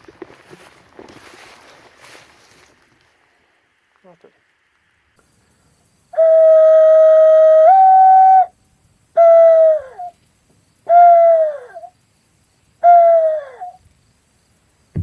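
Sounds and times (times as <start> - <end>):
dove call cooing: 6.2 - 8.5, 9.2 - 10.2, 10.9 - 11.9, 12.8 - 13.8.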